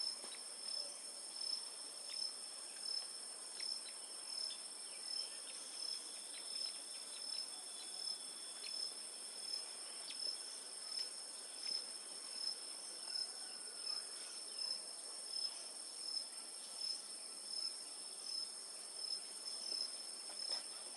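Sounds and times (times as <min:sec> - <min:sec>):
crickets chorus pulsing: 0:00.0 - 0:16.2.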